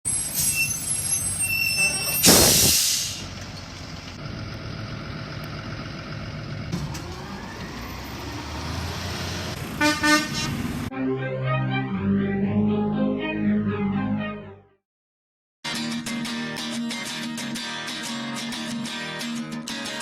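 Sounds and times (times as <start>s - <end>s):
air brakes hissing: 0.2s - 3.4s
truck diesel engine running: 3.2s - 10.9s.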